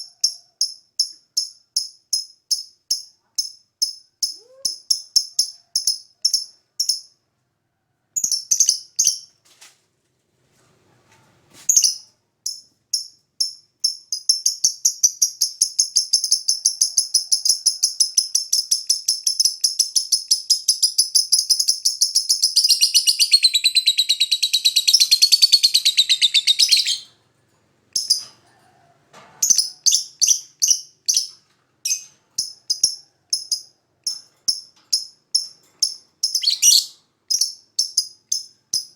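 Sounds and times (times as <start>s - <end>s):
lovebird chirping and trilling: 8.2s - 9.3s, 11.7s - 13.1s, 13.8s - 27.2s, 28.0s - 28.3s, 29.4s - 38.9s.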